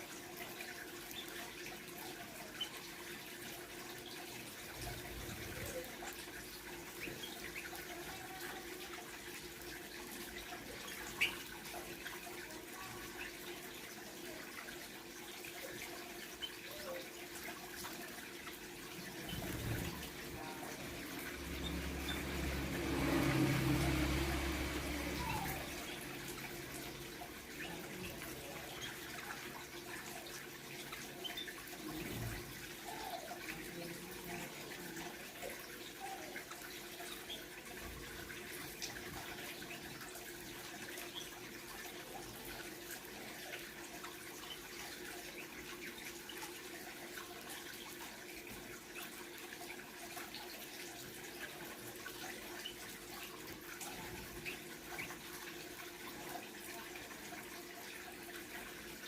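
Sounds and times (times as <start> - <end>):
trickling water: 0.0 - 59.0
faint bird chirps: 0.5 - 8.9, 10.2 - 13.8, 15.6 - 22.6, 25.0 - 37.8.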